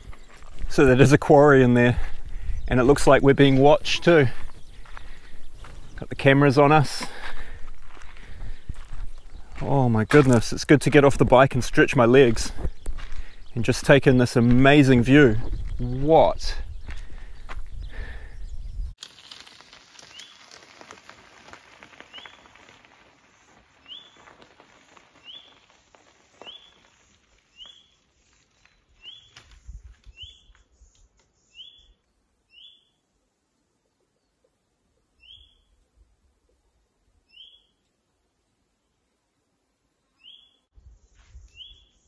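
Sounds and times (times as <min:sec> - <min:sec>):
bird calling: 0:23.8 - 0:24.4, 0:26.4 - 0:28.0, 0:29.0 - 0:33.0, 0:35.2 - 0:35.8, 0:37.3 - 0:37.8, 0:40.1 - 0:42.0.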